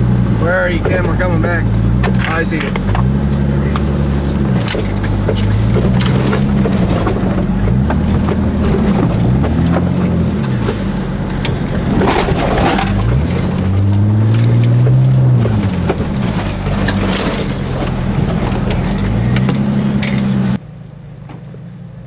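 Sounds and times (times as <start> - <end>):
car engine revving: 0.0 - 21.0
knocks and rattles: 4.5 - 20.6.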